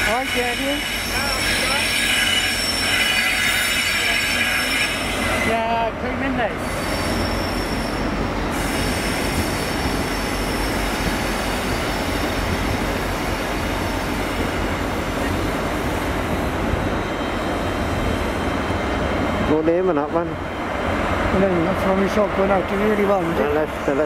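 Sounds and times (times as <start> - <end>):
train rumble: 0.0 - 24.0
faint high wheel squeal: 0.1 - 5.6, 6.6 - 11.1.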